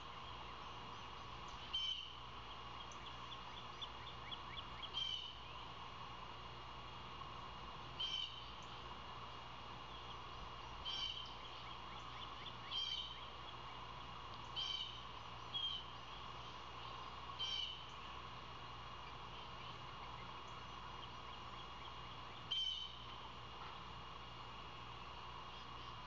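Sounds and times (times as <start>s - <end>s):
bird calling: 0.0s - 5.7s, 7.9s - 8.8s, 9.8s - 18.1s, 18.9s - 23.3s
outdoor background noise: 0.0s - 26.0s.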